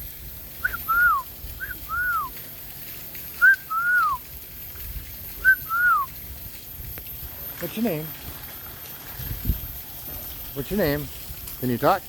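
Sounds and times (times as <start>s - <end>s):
two-note whistle: 0.6s - 2.3s, 3.4s - 4.2s, 5.4s - 6.1s.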